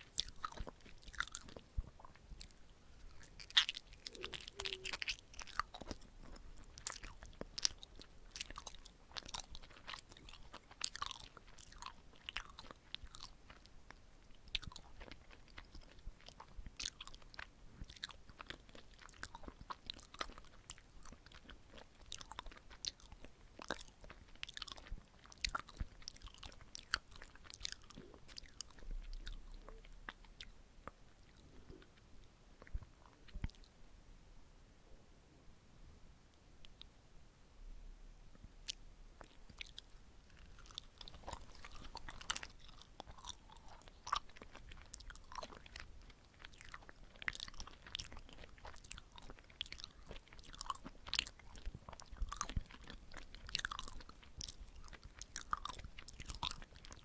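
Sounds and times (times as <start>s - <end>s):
chewy mouth smacks: 0.0s - 11.0s.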